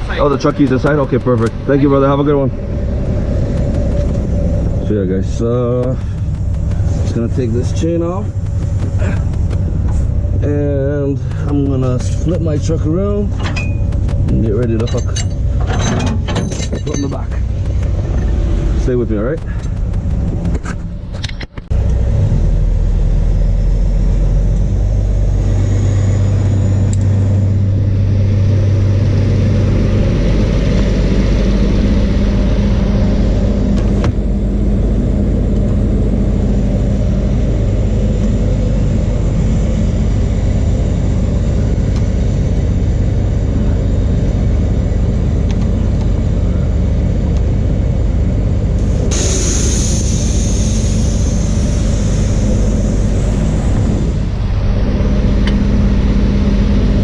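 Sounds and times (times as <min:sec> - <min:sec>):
short hiss: 0:48.8 - 0:53.8.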